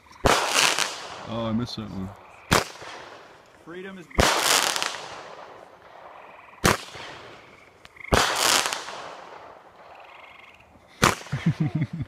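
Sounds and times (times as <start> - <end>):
firework shells bursting: 4.2 - 10.0.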